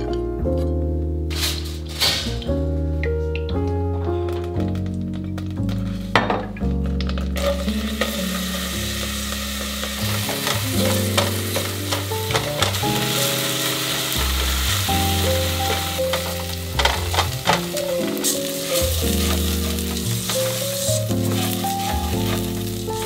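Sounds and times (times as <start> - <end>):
background music: 0.0 - 23.0
onion sizzling in hot oil: 7.1 - 23.0.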